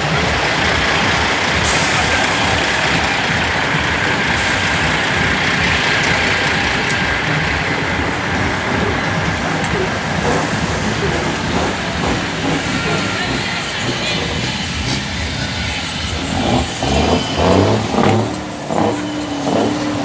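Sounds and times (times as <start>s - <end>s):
heavy truck running: 0.0s - 20.0s.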